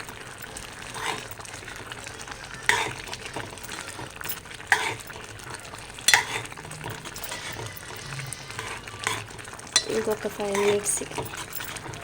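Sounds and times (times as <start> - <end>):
ladle stirring in a pot: 0.0 - 12.0
ladle knocking against pot: 6.1 - 12.0.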